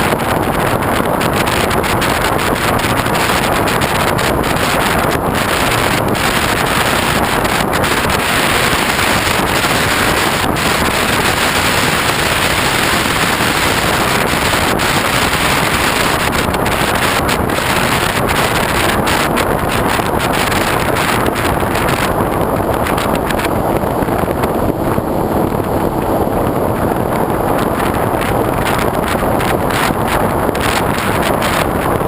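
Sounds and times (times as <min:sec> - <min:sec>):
wind rushing over microphone: 0:00.0 - 0:32.0.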